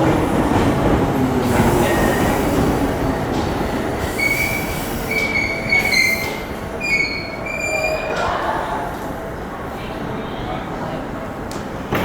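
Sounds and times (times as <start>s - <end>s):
train running rumble: 0.0s - 9.6s
train brake and wheel squeal: 4.0s - 8.4s.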